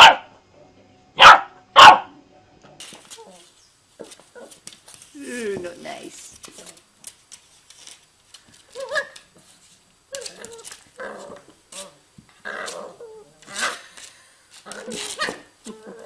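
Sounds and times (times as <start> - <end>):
puppy growling and yipping: 10.1 - 13.8, 14.6 - 16.0.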